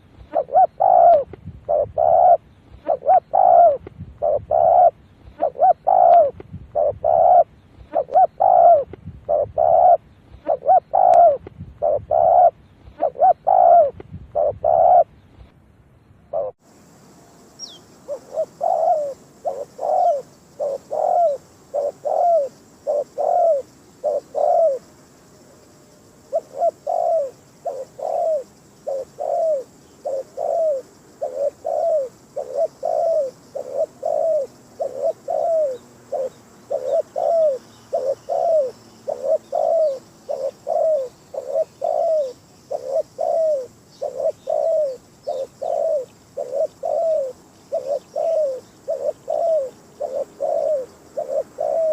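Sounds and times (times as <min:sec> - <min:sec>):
dove cooing: 0:00.0 - 0:15.1, 0:16.3 - 0:16.6, 0:17.6 - 0:24.9, 0:26.2 - 0:51.9.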